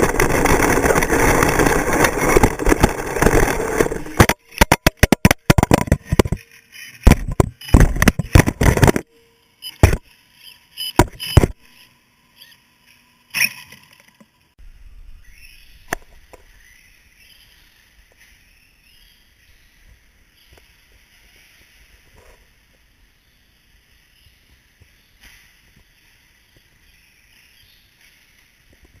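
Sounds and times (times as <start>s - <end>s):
radio-controlled truck motors: 9.6s - 14.4s.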